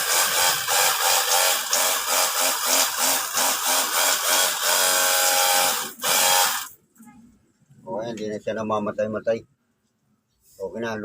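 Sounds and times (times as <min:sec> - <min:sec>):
pressure washer motor pulsing: 0:00.0 - 0:06.7.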